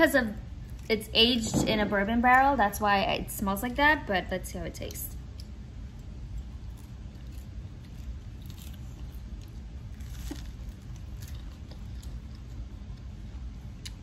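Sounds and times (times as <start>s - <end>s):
steady low hum: 0.0s - 14.0s
person chewing food: 5.3s - 14.0s.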